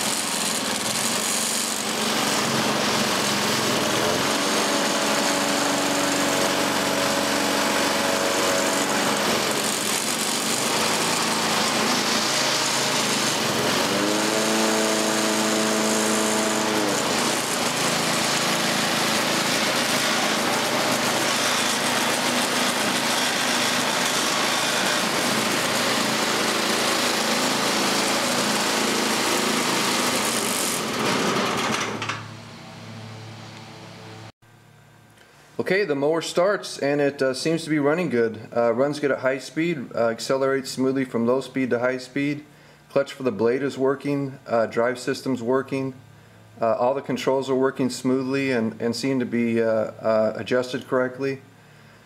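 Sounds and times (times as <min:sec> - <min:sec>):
lawn mower engine revving: 0:00.0 - 0:34.3.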